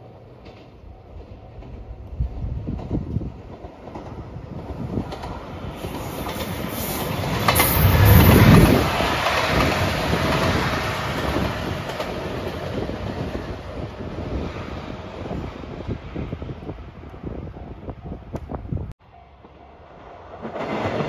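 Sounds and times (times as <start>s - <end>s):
diesel train passing: 0.0s - 21.0s
wheels on rails rumbling: 0.3s - 21.0s.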